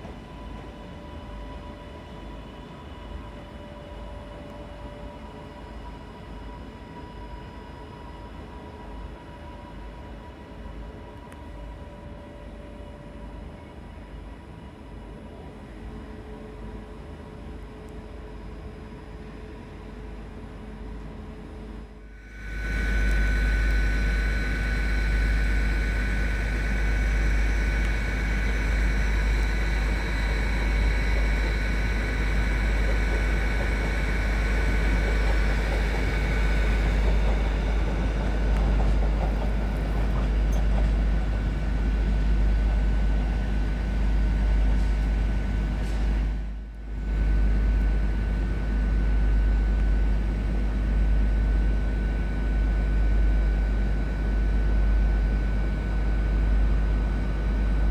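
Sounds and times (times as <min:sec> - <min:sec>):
train low rumble: 0:00.0 - 0:57.9
high-pitched whine: 0:21.6 - 0:42.5.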